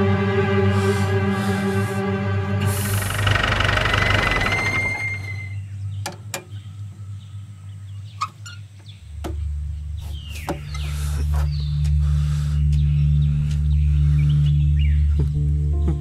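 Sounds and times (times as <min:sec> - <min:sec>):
low steady drone: 0:00.0 - 0:16.0
music: 0:00.0 - 0:16.0
bird chirps and calls: 0:05.0 - 0:15.2.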